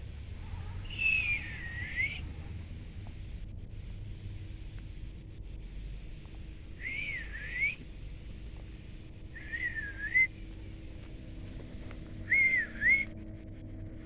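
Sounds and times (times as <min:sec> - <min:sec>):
wavering high whistles: 0:00.6 - 0:02.5, 0:06.6 - 0:07.9, 0:09.2 - 0:10.7, 0:11.8 - 0:13.3.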